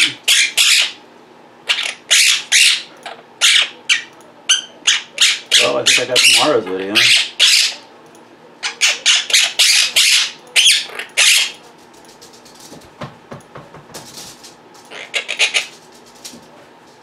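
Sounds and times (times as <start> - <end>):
parrots squawking harshly: 0.0 - 1.0, 1.7 - 7.8, 8.6 - 11.6, 14.9 - 15.8.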